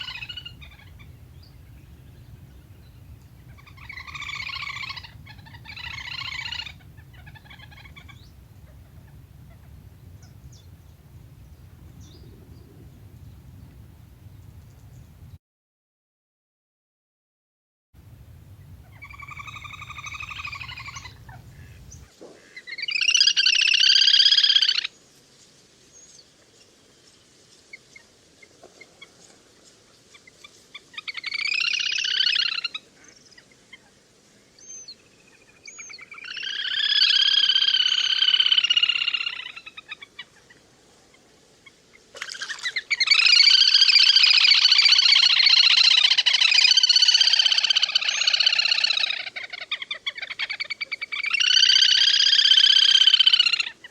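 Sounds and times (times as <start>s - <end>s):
waterbird trilling calls: 0.0s - 15.4s, 18.2s - 24.9s, 31.0s - 32.9s, 35.6s - 40.2s, 41.9s - 53.9s.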